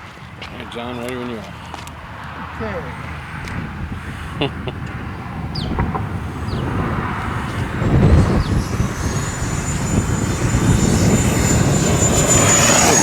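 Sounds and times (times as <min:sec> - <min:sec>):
model jet fan whine: 0:04.9 - 0:13.0.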